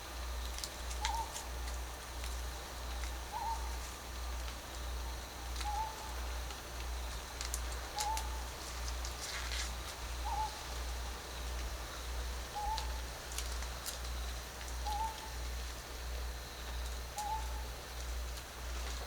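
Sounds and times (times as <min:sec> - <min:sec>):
bird call: 0:05.6 - 0:06.1, 0:08.0 - 0:08.4, 0:14.8 - 0:15.3, 0:17.2 - 0:17.6.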